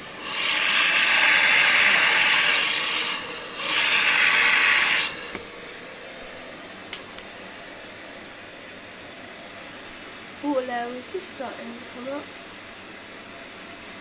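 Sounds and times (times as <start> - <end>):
water rushing into washing machine: 0.0 - 5.4.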